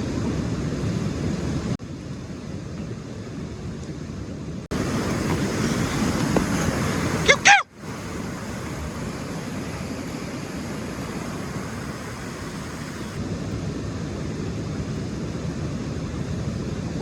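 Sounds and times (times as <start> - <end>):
steady outdoor hiss: 0.0 - 17.0
high-pitched voice cry: 7.3 - 7.7.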